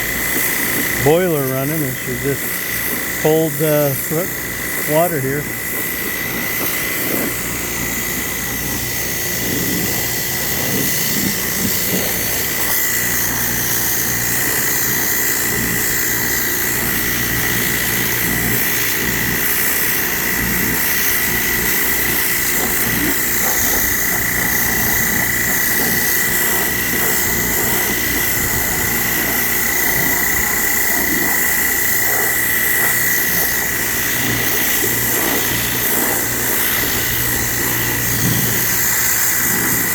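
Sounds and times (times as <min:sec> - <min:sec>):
pressure washer whining: 0:00.0 - 0:39.9
water jet spraying on concrete: 0:00.0 - 0:39.9.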